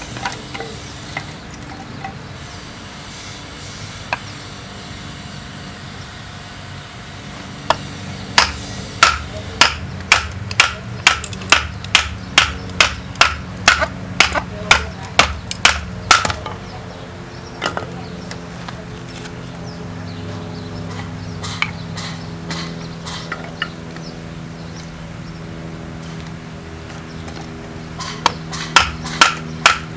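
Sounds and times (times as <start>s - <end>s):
flint and steel striking: 8.4s - 16.5s, 28.0s - 29.9s.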